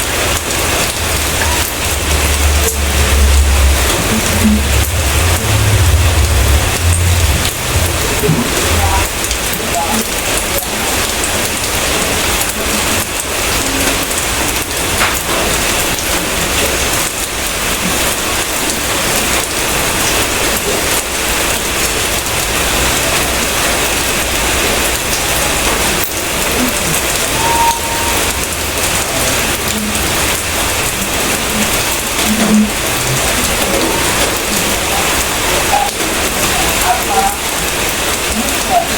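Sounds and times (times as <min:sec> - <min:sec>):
steady rain falling: 0:00.0 - 0:38.9
low rumble: 0:00.2 - 0:09.6.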